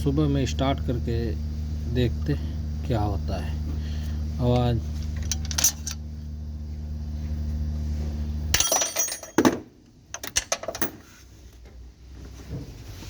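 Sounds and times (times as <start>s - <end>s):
metallic clinks and clanks: 5.2s - 6.0s, 8.6s - 11.1s.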